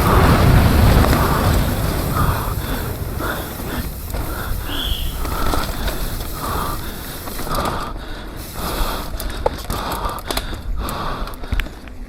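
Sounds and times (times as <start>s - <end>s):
bike clicks and knocks: 0.0s - 12.0s
mountain bike rumbling on rough trail: 0.0s - 12.0s
rider breathing hard: 0.0s - 12.0s.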